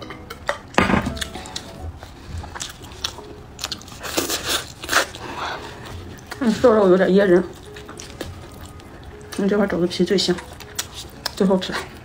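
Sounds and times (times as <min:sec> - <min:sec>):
chewing meat with mouth smacks: 0:01.2 - 0:06.5, 0:07.4 - 0:09.6, 0:10.3 - 0:12.0.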